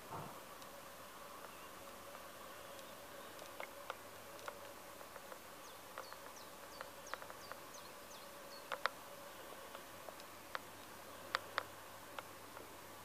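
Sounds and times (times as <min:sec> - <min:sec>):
faint steady hum: 0:00.0 - 0:13.0
sharp clicks: 0:01.4 - 0:07.6, 0:08.6 - 0:09.0, 0:09.7 - 0:12.7.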